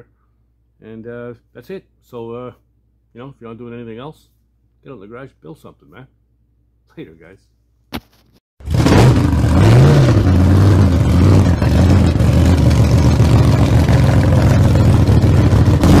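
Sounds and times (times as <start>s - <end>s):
engine idling and revving: 8.6s - 16.0s.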